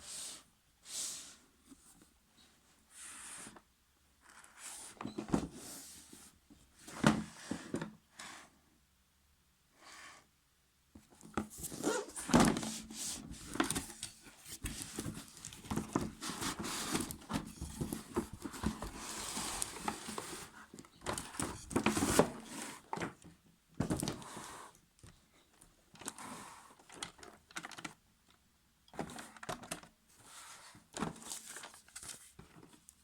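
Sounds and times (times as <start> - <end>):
crinkling and rustling: 11.0 - 33.0.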